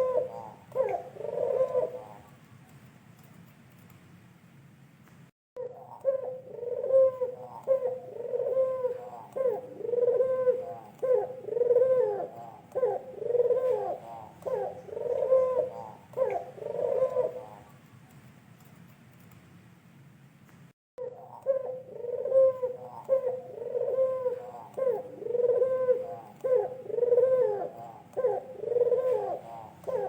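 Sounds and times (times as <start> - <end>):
dove cooing: 0.0 - 2.3, 5.6 - 17.7, 21.0 - 30.0.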